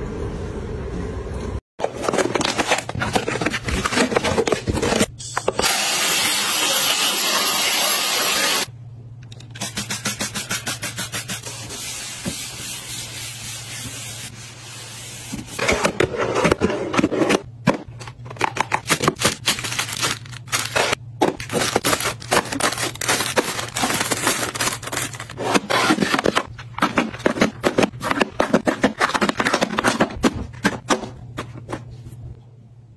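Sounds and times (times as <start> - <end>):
plastic packaging hissing: 19.3 - 25.4.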